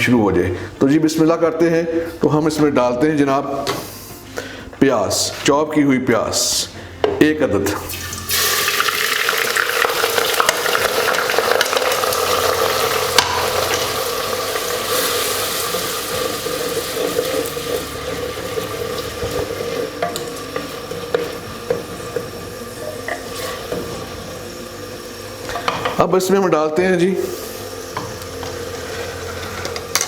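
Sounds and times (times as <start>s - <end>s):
onion sizzling in hot oil: 7.8s - 26.2s, 27.2s - 30.0s.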